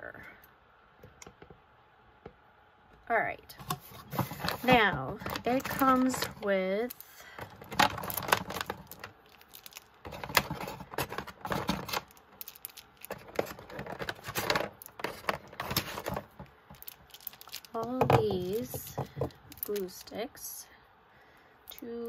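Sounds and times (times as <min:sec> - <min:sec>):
plastic packaging crinkling: 0:03.8 - 0:20.1.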